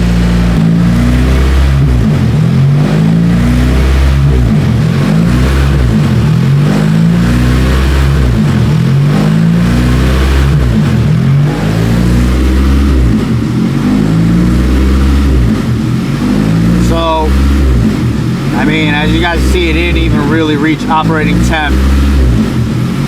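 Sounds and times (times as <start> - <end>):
car engine idle surging: 0.0 - 23.0.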